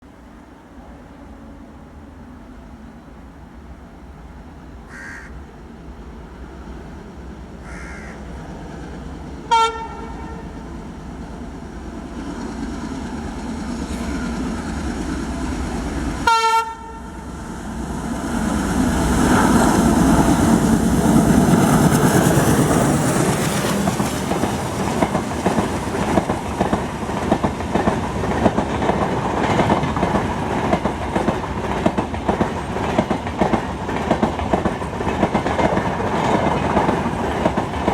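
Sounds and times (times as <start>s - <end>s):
locomotive passing loudly: 8.2s - 37.9s
train horn blasts: 9.5s - 10.6s, 16.2s - 17.3s
wheels clacking over rail joints: 19.3s - 37.9s.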